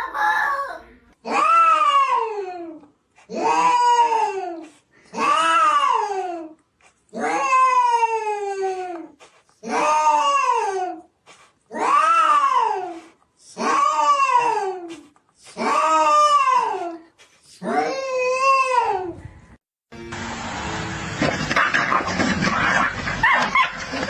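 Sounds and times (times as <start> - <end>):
cat yowling: 1.3 - 2.4, 11.7 - 14.8.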